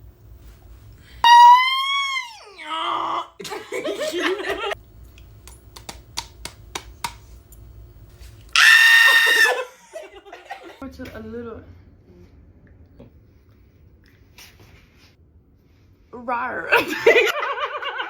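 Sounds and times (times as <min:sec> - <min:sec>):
high squeal sliding down: 0:01.2 - 0:02.6
shrill steady squeal: 0:01.2 - 0:02.8.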